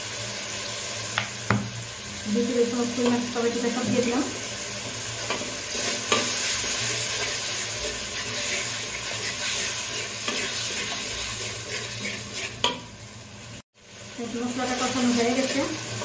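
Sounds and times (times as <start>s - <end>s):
spices sizzling in hot oil: 0.0s - 16.0s
metal spatula scraping pot: 5.2s - 12.9s.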